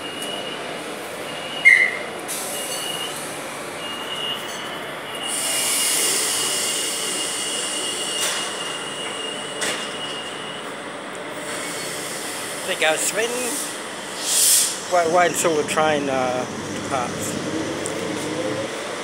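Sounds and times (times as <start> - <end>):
electric train high whine: 0.0 - 19.0
loud air hiss: 5.2 - 9.6, 11.5 - 17.1.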